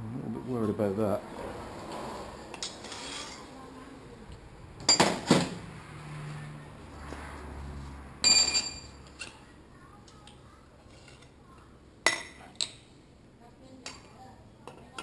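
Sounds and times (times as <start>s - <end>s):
sharp metal knocks: 4.8s - 5.6s
ringing metallic clank: 8.2s - 9.0s
metal tools clinking: 8.2s - 9.4s.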